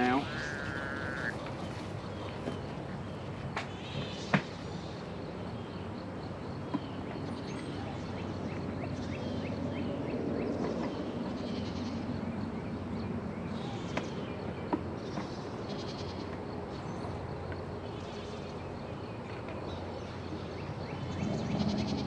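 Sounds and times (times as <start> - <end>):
goat bleating: 0.0 - 1.4.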